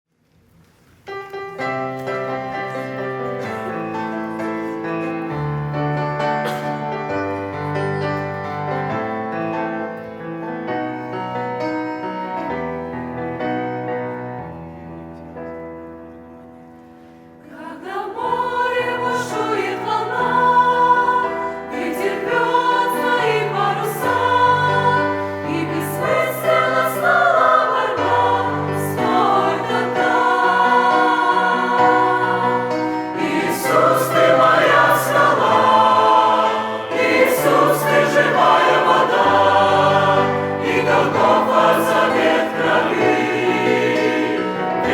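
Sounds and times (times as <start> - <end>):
church choir singing a hymn: 1.6 - 14.6, 16.8 - 44.9
keyboard: 18.2 - 44.9.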